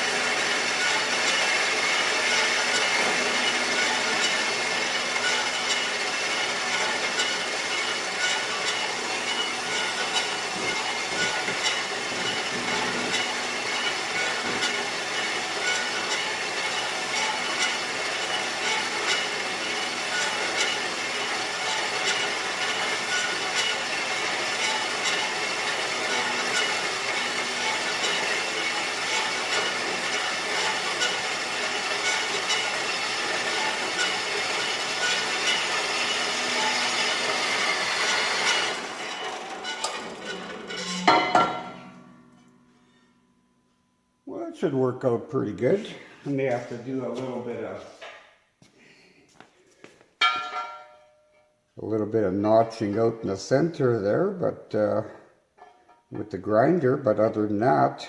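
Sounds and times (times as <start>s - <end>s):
bandsaw cutting metal: 0.0s - 43.0s.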